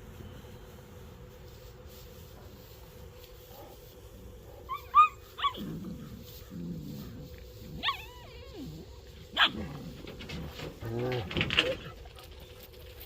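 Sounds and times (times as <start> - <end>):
puppies yipping and whimpering: 4.7 - 7.1, 7.8 - 9.6.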